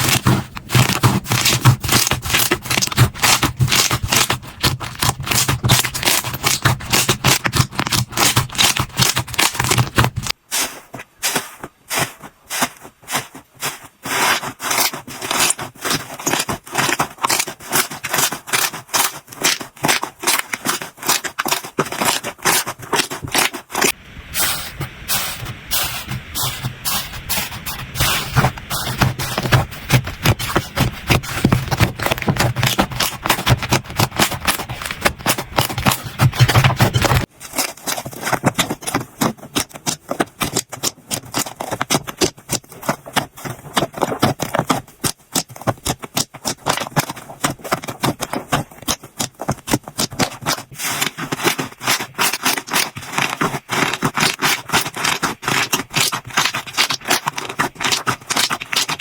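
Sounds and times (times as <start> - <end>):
slime popping and crackling: 0.0 - 10.4, 14.6 - 24.0, 25.7 - 42.4, 48.3 - 59.0.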